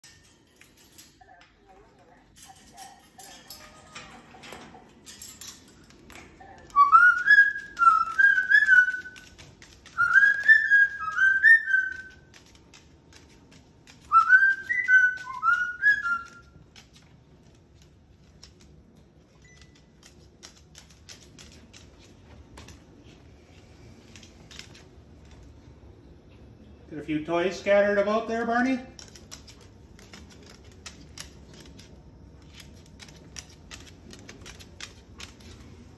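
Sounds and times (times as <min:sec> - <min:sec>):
cockatoo whistling: 0:06.7 - 0:09.2, 0:10.0 - 0:12.3, 0:14.1 - 0:16.5.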